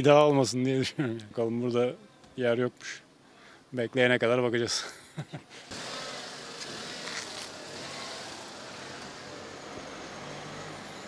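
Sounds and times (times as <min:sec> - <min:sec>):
street traffic noise: 0:05.5 - 0:11.0
car engine running: 0:05.7 - 0:11.0.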